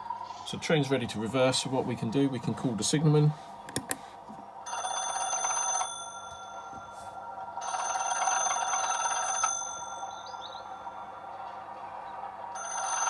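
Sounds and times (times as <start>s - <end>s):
telephone bell ringing: 4.6s - 11.3s, 12.5s - 13.0s.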